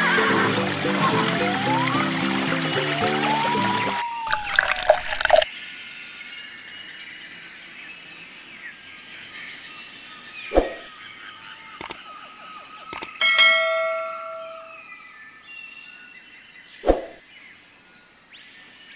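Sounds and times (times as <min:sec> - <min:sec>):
birds chirping: 0:09.2 - 0:17.6
sharp clicks: 0:11.8 - 0:12.0, 0:12.9 - 0:13.2
bell ding: 0:13.2 - 0:14.9.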